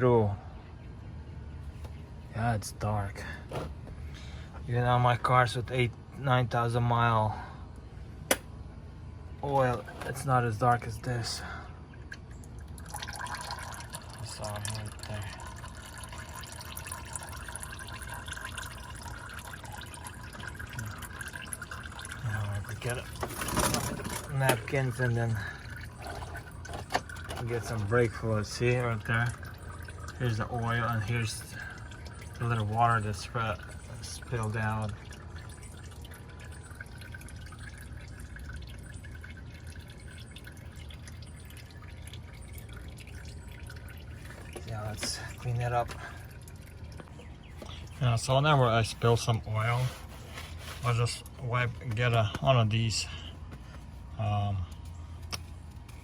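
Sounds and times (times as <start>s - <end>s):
oil trickling into a pan: 9.5s - 52.2s.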